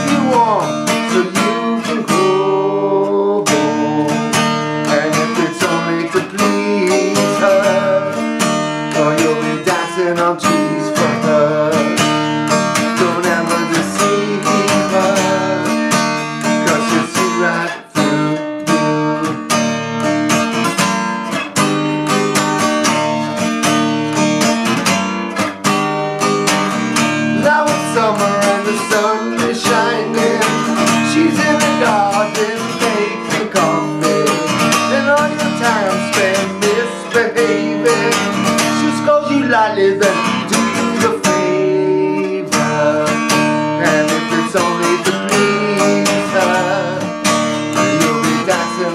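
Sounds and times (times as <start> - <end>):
acoustic guitar strumming: 0.0 - 48.9
wordless melody line: 0.0 - 48.9.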